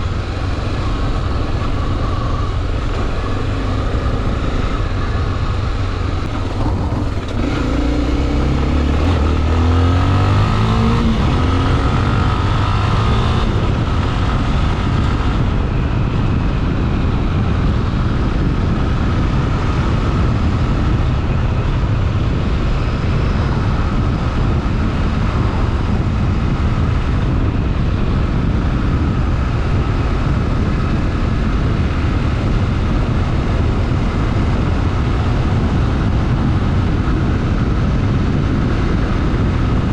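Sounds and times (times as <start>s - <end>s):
motorcycle engine revving: 0.0s - 29.2s
loud constant rushing noise: 0.0s - 39.9s.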